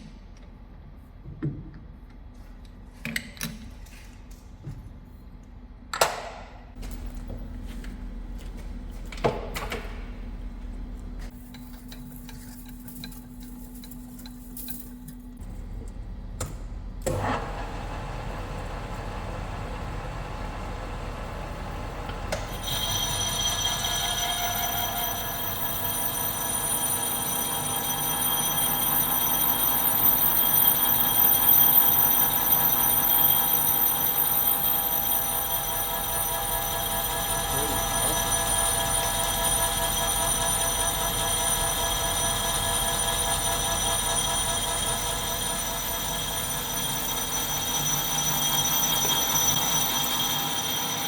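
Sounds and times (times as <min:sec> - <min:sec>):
metal lathe cutting steel: 0:19.5 - 0:51.0
high-pitched ringing: 0:22.5 - 0:51.0.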